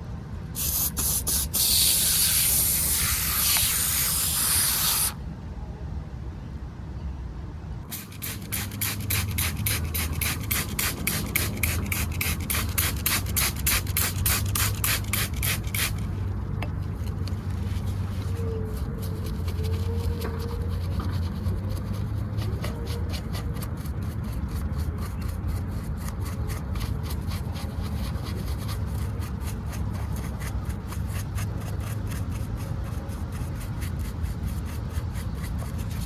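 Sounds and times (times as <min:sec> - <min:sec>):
small brush scrubbing: 0:00.6 - 0:05.2, 0:07.9 - 0:36.0
spray hissing: 0:00.6 - 0:05.2, 0:07.9 - 0:16.0.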